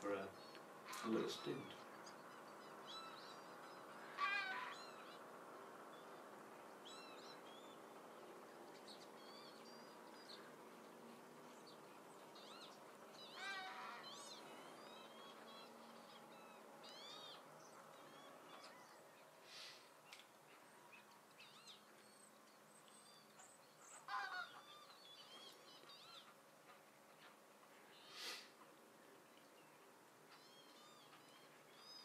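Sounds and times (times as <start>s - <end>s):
drawn-out bird calls: 0.0s - 5.6s, 12.0s - 22.2s, 23.2s - 28.6s
bird chirps: 11.5s - 26.4s, 29.3s - 32.0s.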